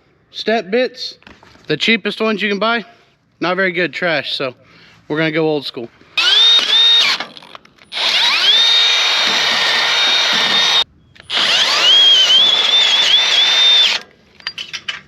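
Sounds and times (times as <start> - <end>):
electric drill whining: 6.2 - 7.2, 7.9 - 14.0.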